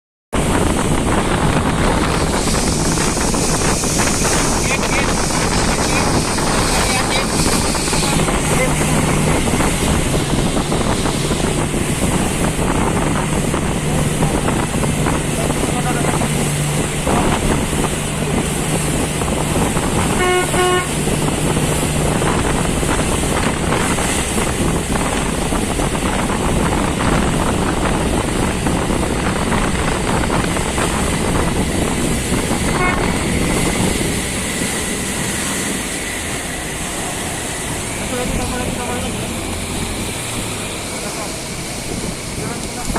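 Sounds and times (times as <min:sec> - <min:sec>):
engine running: 0:00.4 - 0:42.9
heavy rushing noise: 0:00.4 - 0:42.9
horn tooting: 0:20.0 - 0:21.0, 0:32.6 - 0:33.4.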